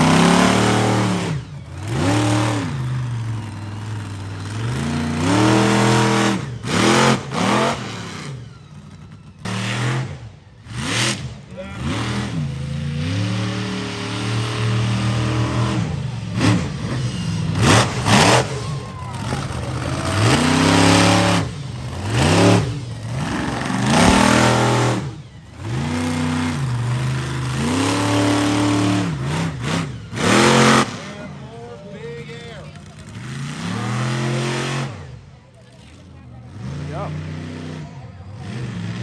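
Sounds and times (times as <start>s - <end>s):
monster truck engine revving: 0.0s - 39.0s
loud bursts of noise: 15.2s - 31.1s.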